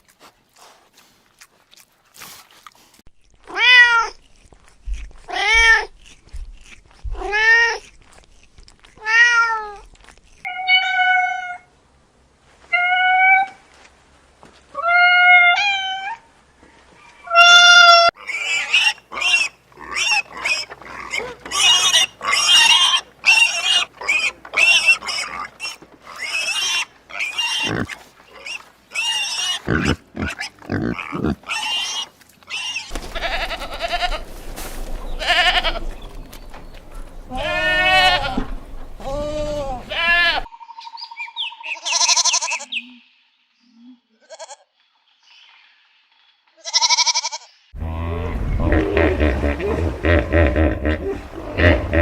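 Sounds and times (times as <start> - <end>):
harsh animal squeals: 18.1 - 40.5, 46.8 - 52.0.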